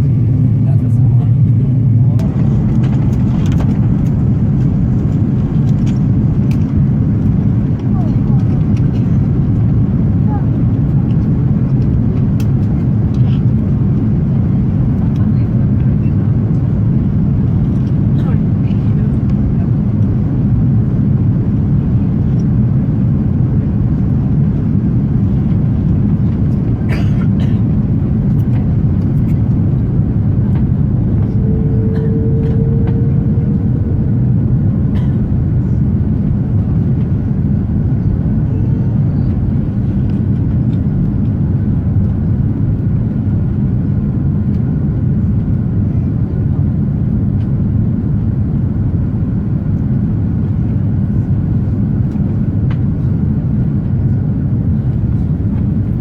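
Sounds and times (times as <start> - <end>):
airliner engines roaring: 0.0 - 56.0
steady tone: 29.5 - 36.6
rushing air: 29.7 - 36.2.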